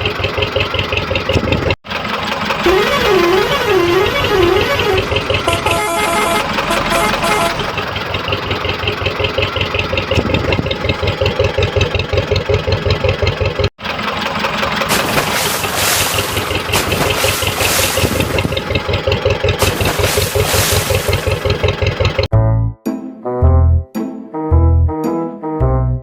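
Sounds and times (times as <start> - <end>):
vehicle engine idling: 0.0 - 22.3
hiss: 15.2 - 18.3, 19.6 - 21.4.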